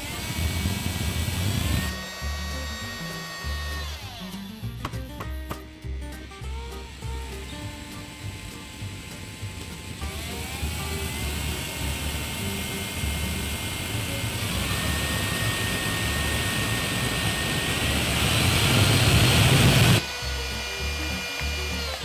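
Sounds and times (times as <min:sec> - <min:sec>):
jet engine rushing whine: 0:11.6 - 0:20.0.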